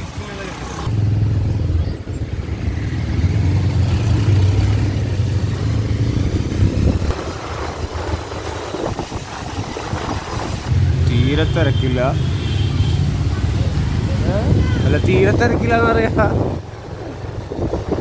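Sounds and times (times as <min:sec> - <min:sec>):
motorcycle engine rumble: 0:00.0 - 0:18.0
road traffic: 0:00.0 - 0:18.0.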